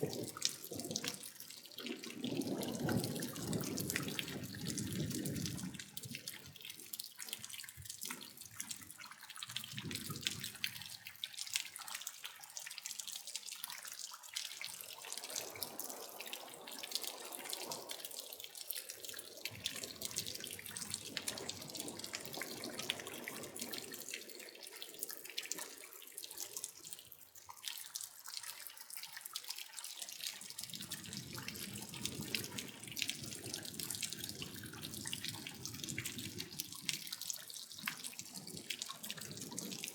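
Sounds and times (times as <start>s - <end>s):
rain patter: 0.0s - 39.9s
rush of water: 0.0s - 39.9s.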